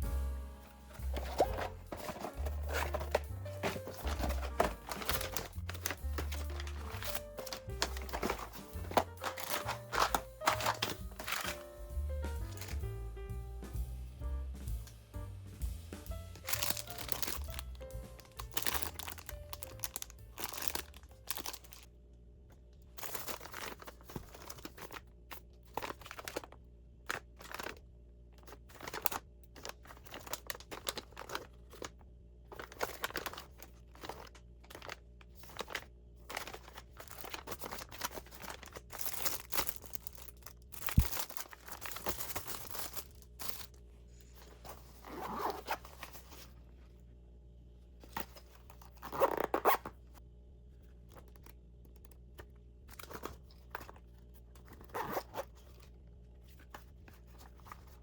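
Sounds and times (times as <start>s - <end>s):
soft background music: 0.0s - 22.0s
packaging rustling and crinkling: 0.6s - 13.0s, 16.4s - 21.9s, 23.0s - 27.8s, 28.4s - 46.6s, 48.0s - 50.0s, 52.9s - 58.0s.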